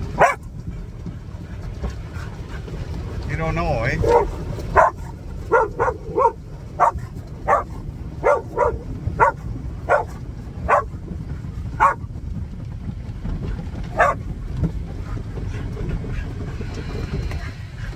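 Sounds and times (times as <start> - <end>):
dog barking: 0.0 - 0.5, 4.0 - 11.0, 11.7 - 12.1, 13.9 - 14.3
steady low rumble: 0.0 - 17.9.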